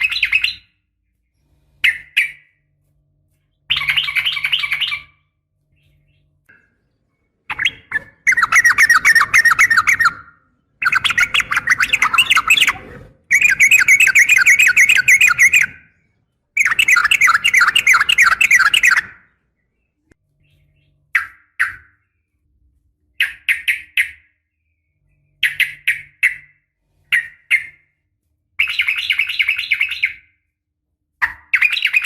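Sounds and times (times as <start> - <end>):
bird chattering calls: 7.5 - 15.8, 16.6 - 19.2.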